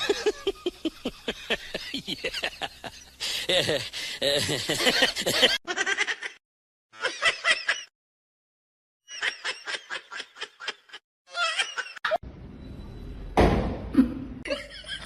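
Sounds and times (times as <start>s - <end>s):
high-pitched laughter: 0.0s - 6.4s, 7.0s - 7.9s, 9.1s - 12.2s.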